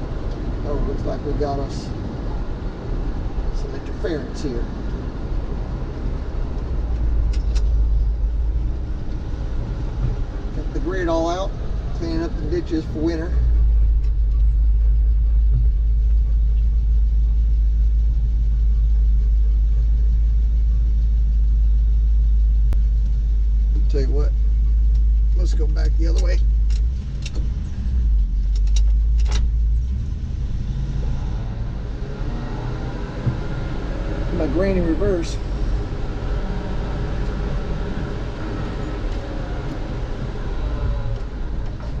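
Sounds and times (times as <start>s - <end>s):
road noise: 0.0s - 42.0s
truck engine rumbling: 0.0s - 42.0s.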